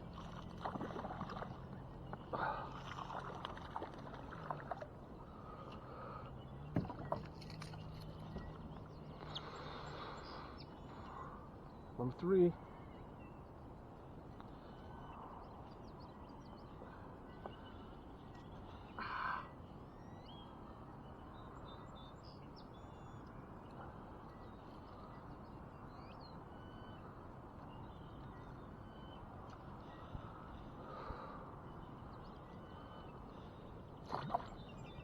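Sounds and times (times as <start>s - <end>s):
wild birds chirping and calling: 7.8s - 13.2s, 16.4s - 20.6s.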